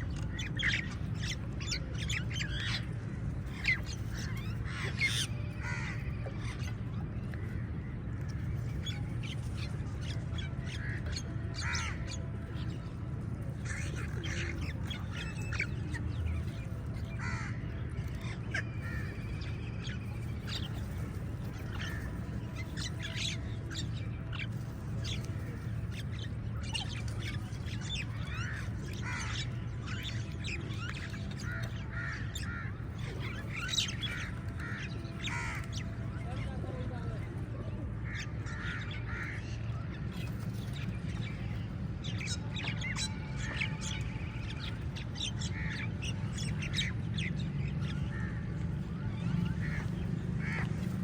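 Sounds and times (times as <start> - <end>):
crows cawing: 5.6 - 6.0, 17.2 - 17.6, 29.0 - 29.3, 31.5 - 32.7, 34.2 - 35.6.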